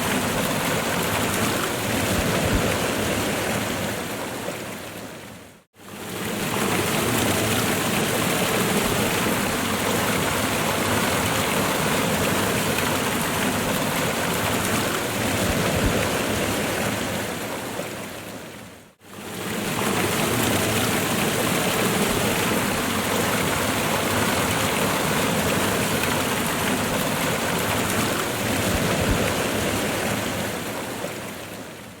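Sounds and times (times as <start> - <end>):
waterfall rushing: 19.3 - 31.3.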